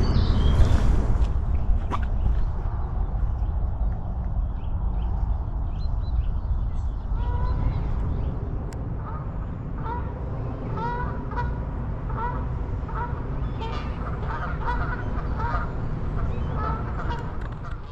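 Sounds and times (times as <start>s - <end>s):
low rumble: 0.0s - 17.9s
geese honking: 9.0s - 17.9s.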